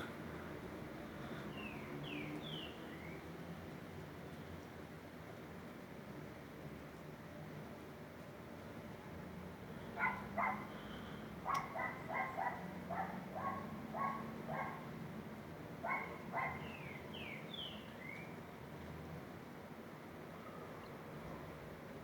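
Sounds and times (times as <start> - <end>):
background hiss: 0.0 - 22.0
dog barking: 10.0 - 10.7, 11.4 - 14.9, 15.8 - 16.7.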